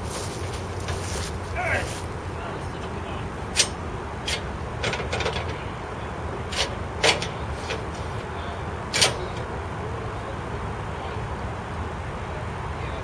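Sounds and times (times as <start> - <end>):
low machinery rumble: 0.0 - 13.0
sharp metal clanks: 3.5 - 5.6, 6.5 - 8.1, 8.9 - 9.5.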